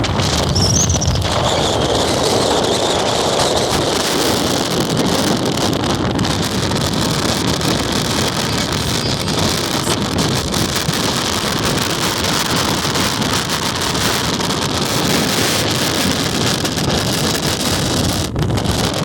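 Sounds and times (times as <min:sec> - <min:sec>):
wind gusts buffeting microphone: 0:00.0 - 0:19.0.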